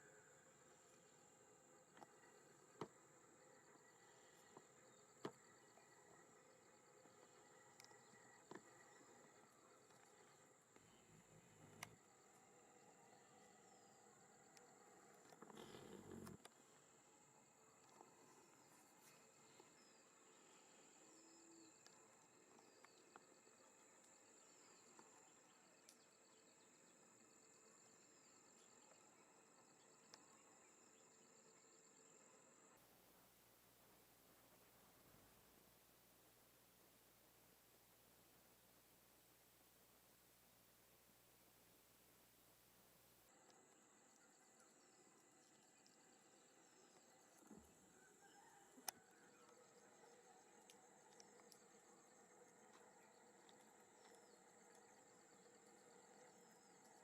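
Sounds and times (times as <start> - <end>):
faint clicks: 7.0 - 12.5, 24.8 - 26.1, 48.7 - 57.0.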